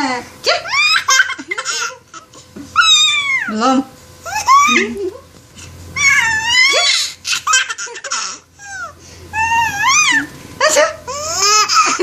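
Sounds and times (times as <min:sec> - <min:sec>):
baby laughing: 0:00.6 - 0:03.5, 0:06.0 - 0:12.0.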